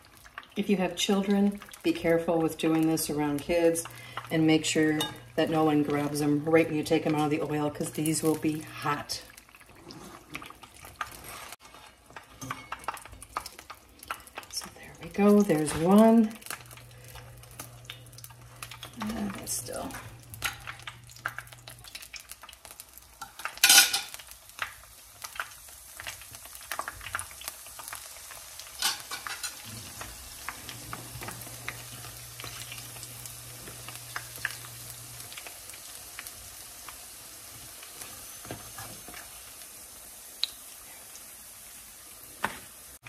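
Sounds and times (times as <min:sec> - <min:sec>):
food sizzling in hot oil: 0:00.0 - 0:43.0.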